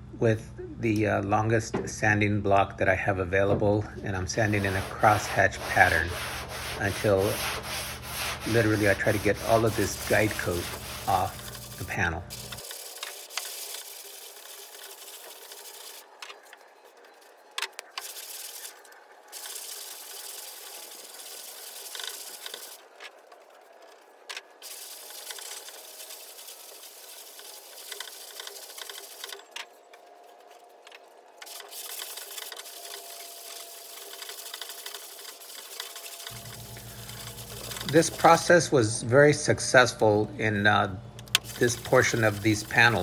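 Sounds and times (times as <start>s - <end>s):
sandpaper rasping on metal panel: 4.1s - 23.0s, 23.6s - 38.7s, 40.0s - 43.0s.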